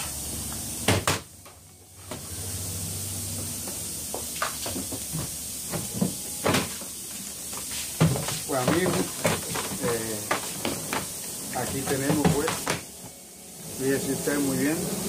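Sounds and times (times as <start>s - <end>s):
background hiss: 0.0s - 15.0s
washing machine parts clattering: 8.0s - 12.7s.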